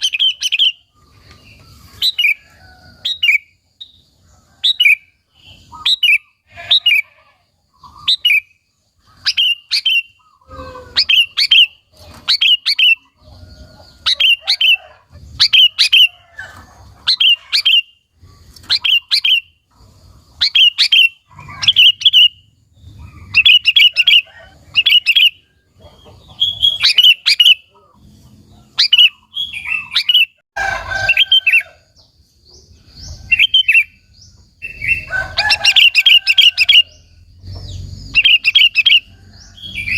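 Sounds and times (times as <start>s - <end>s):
bulbul chirping phrases: 0.0s - 0.9s, 4.6s - 13.2s, 20.3s - 28.0s, 32.9s - 39.1s
rough bird call: 4.6s - 31.8s, 32.7s - 39.9s.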